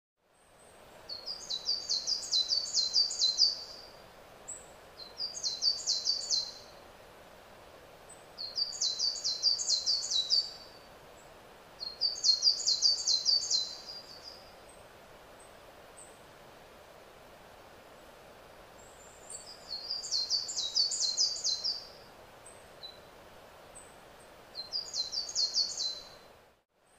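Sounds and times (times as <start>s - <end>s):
songbird singing: 0.2s - 6.8s, 8.1s - 16.2s, 18.7s - 26.9s
background hiss: 0.2s - 26.9s.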